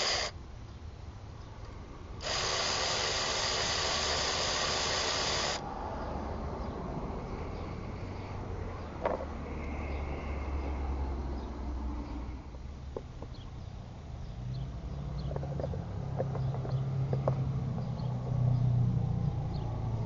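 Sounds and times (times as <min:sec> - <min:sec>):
spraying hiss: 0:00.0 - 0:00.3, 0:02.2 - 0:05.6.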